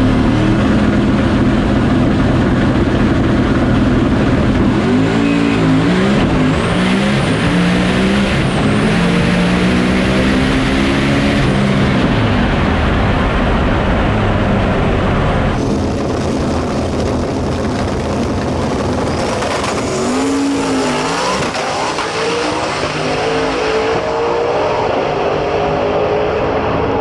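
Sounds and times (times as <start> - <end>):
race car engine revving high: 0.0 - 12.6, 15.4 - 27.0
high whine: 15.4 - 22.8.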